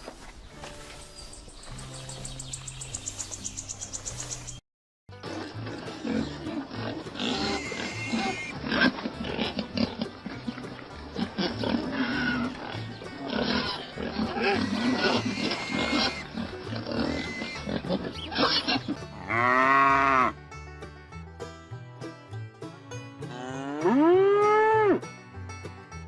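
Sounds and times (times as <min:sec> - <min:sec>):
background music: 0:05.1 - 0:26.0
loud drawn-out animal call: 0:07.3 - 0:08.6, 0:13.5 - 0:16.4, 0:17.0 - 0:20.3
animal grunts and rough calls: 0:11.1 - 0:19.4.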